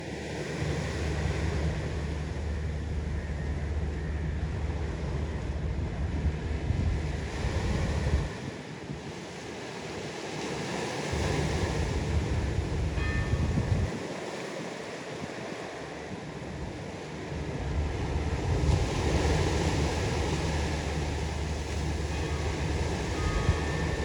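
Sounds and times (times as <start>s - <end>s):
sea waves washing: 0.0s - 24.0s
wind buffeting microphone: 0.0s - 24.0s.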